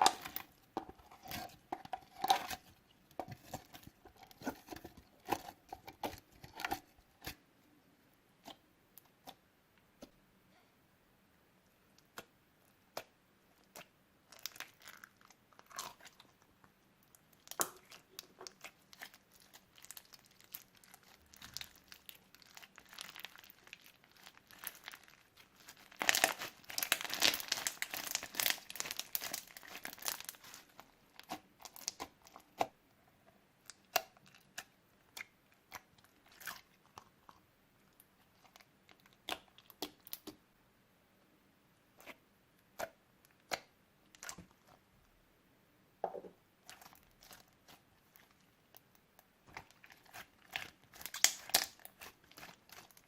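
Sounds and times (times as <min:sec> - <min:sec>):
slime squished by hand: 0:17.3 - 0:32.8, 0:49.5 - 0:53.0
crackling clicks and pops: 0:50.5 - 0:53.0.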